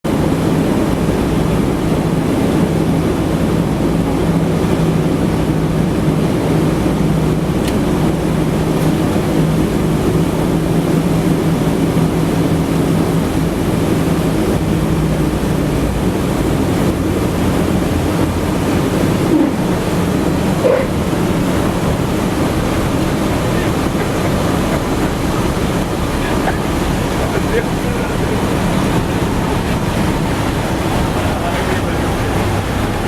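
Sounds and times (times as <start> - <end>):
rushing noise: 8.0 - 33.0.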